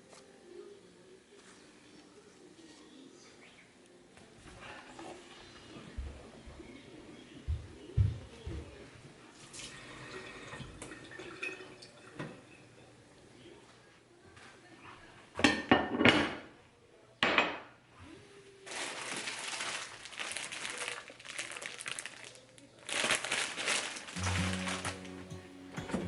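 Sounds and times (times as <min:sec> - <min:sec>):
crinkling rustle: 0:18.6 - 0:26.0
music: 0:24.2 - 0:26.0.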